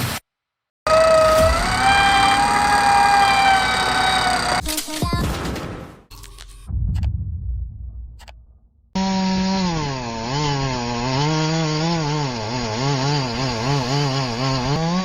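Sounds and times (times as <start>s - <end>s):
chainsaw engine revving: 0.9s - 4.7s, 9.0s - 15.0s
low rumble: 6.3s - 9.0s.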